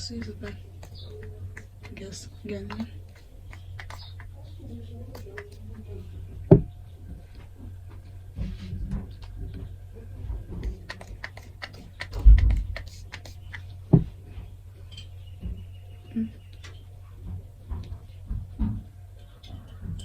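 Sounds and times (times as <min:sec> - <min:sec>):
objects tapping and clicking: 0:00.0 - 0:04.5, 0:07.3 - 0:14.1
low steady hum: 0:00.0 - 0:20.0.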